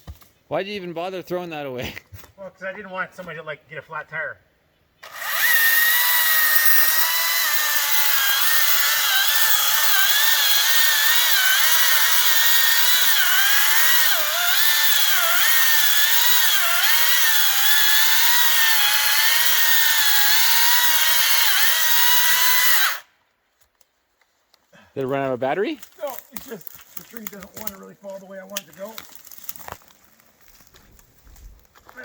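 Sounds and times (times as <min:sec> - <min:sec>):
electric chainsaw cutting wood: 0:05.0 - 0:23.1.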